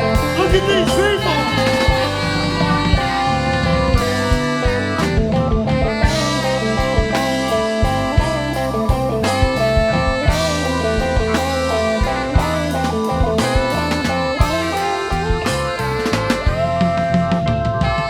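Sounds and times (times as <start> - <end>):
bass and drums: 0.0 - 18.0
electric guitar: 0.0 - 18.0.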